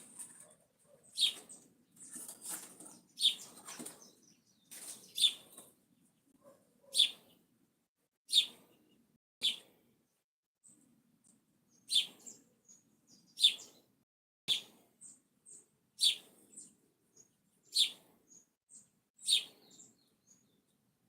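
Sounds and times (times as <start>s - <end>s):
sharp bird calls: 0.2s - 2.3s, 2.9s - 5.6s, 6.8s - 7.4s, 8.3s - 9.6s, 11.8s - 13.9s, 14.5s - 20.4s
faint bird chirping: 0.2s - 7.4s, 8.3s - 10.9s, 11.7s - 13.9s, 14.5s - 20.8s.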